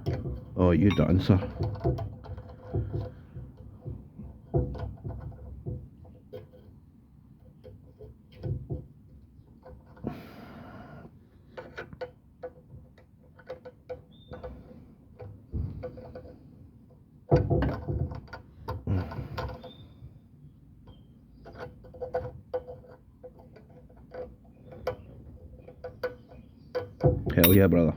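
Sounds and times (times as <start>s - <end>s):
hand tools clicking on metal: 27.3s - 27.8s.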